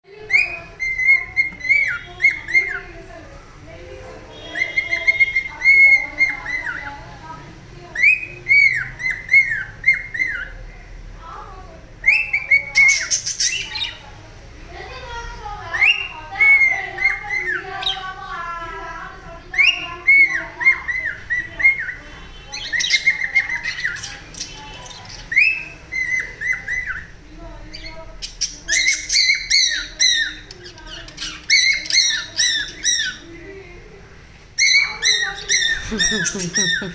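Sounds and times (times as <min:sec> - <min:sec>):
cockatiel squawking: 0:34.6 - 0:36.9.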